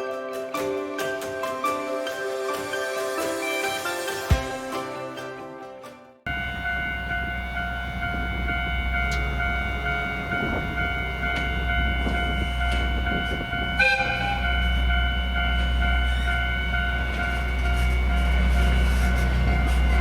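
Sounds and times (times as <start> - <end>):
diesel railcar drone: 6.2 - 20.0
high-pitched tones: 6.3 - 20.0
horn toot: 13.7 - 14.8.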